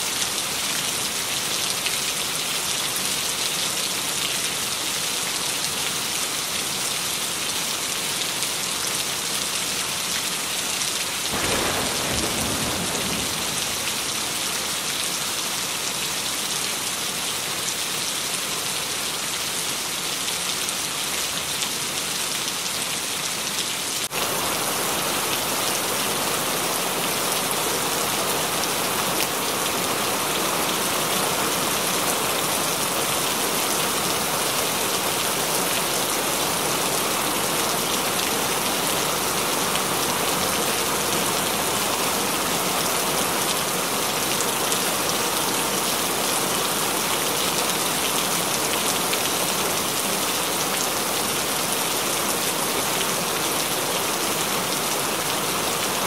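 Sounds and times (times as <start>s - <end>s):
steady rain: 0.0s - 56.0s
low rumble of thunder: 11.4s - 14.2s.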